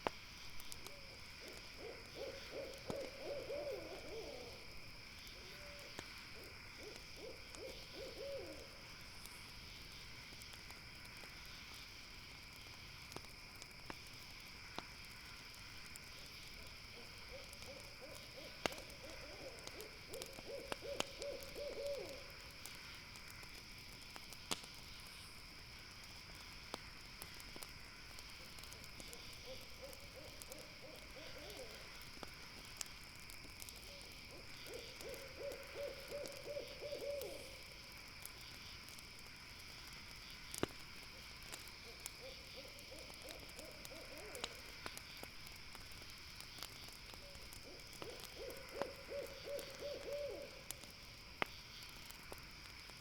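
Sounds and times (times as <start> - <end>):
campfire crackling pops: 0.0 - 53.0
high insect trill: 0.2 - 53.0
owl hooting: 1.4 - 4.6, 5.4 - 8.7, 17.0 - 22.3, 29.4 - 31.9, 33.9 - 37.6, 41.8 - 44.7, 47.2 - 50.7.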